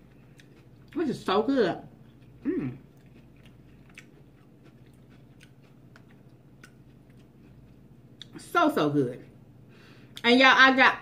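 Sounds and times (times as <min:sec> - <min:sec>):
person chewing crisp food: 0:00.0 - 0:08.4.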